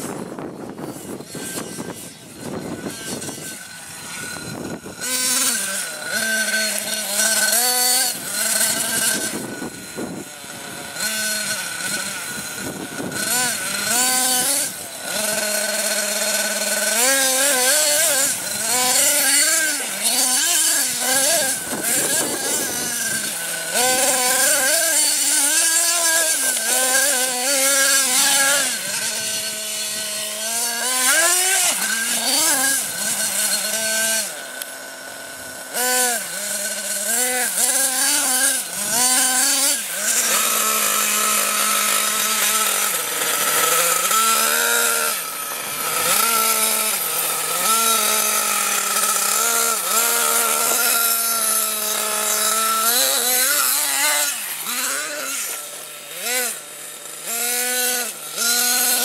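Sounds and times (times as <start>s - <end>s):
rc truck engine revving: 0.0s - 59.0s.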